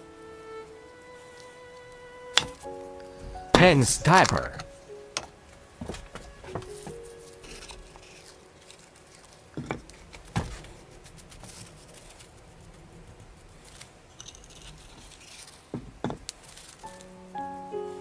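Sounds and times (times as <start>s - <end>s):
faint rustling and scraping: 4.7s - 17.1s.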